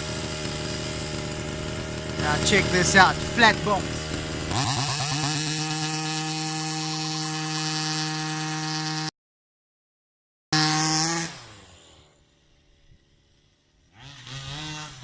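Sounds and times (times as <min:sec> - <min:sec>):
two-stroke engine revving: 0:00.0 - 0:09.1, 0:10.6 - 0:12.2, 0:13.8 - 0:15.0.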